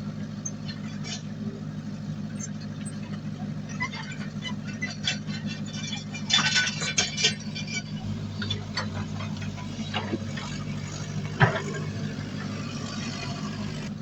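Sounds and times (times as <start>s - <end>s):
deep engine tone: 0.0s - 14.0s
diesel earthmoving machinery running: 0.0s - 14.0s
soil and stones clinking: 3.1s - 13.9s.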